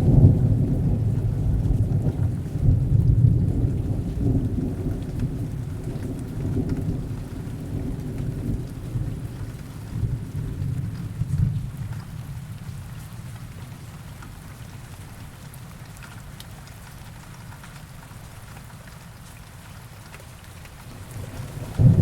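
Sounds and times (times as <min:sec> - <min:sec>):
distant thunder rumbling: 0:00.0 - 0:11.8, 0:21.0 - 0:22.0
heavy rain: 0:00.0 - 0:22.0.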